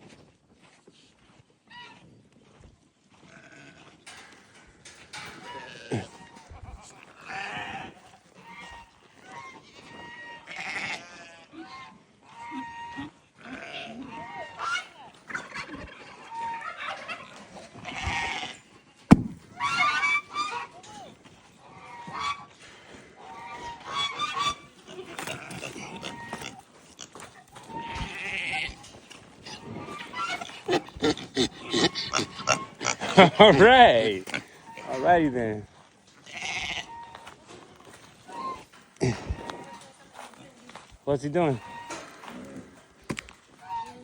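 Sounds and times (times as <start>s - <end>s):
goat bleats: 3.2s - 4.4s, 5.1s - 21.1s, 23.3s - 35.6s, 36.2s - 40.4s
sharp knock: 19.1s - 19.6s
waterfowl honking: 19.1s - 20.8s, 23.2s - 24.7s, 41.6s - 42.4s, 43.6s - 44.0s.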